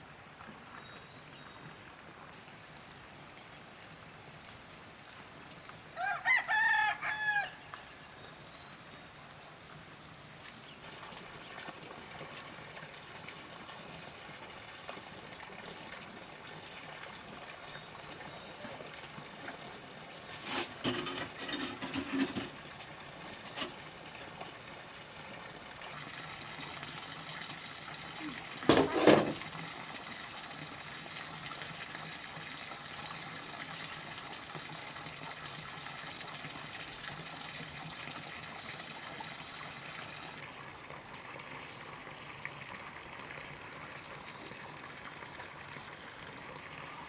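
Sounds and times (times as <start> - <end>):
rooster crowing: 6.0 - 7.6.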